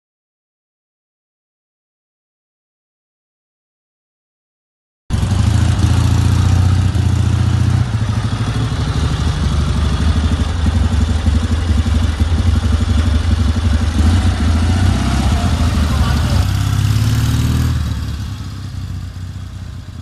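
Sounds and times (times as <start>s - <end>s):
motorcycle engine running: 5.1s - 20.0s.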